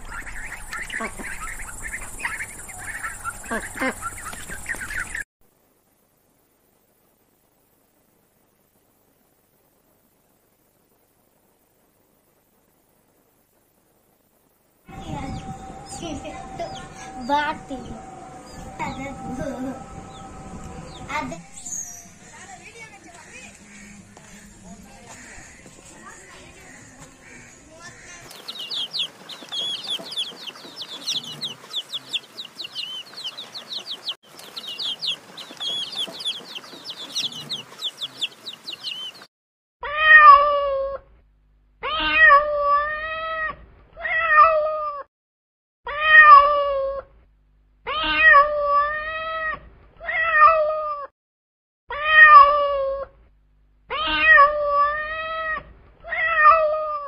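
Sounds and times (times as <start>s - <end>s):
chicks peeping: 0.0s - 5.2s, 14.9s - 39.3s
cat meowing: 41.8s - 45.0s, 47.9s - 51.1s, 53.9s - 57.0s.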